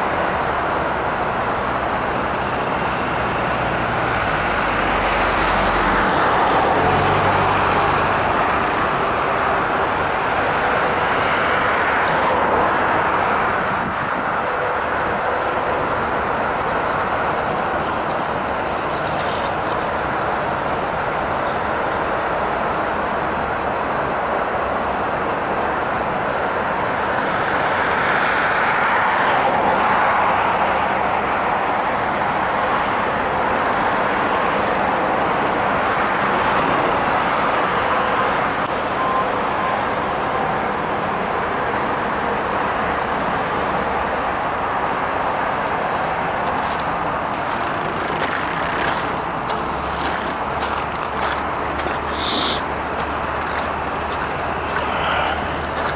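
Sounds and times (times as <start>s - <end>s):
car road and tyre noise: 0.0s - 55.9s.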